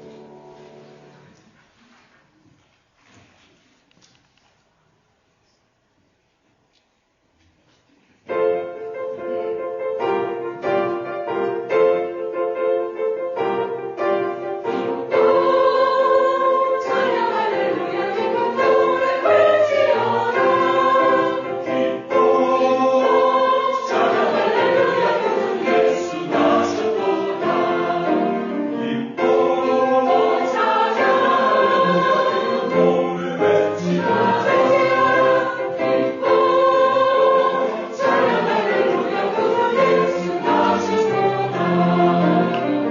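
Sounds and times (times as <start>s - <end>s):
piano accompaniment: 0.0s - 1.4s, 8.3s - 42.9s
choir singing a hymn: 13.3s - 42.9s.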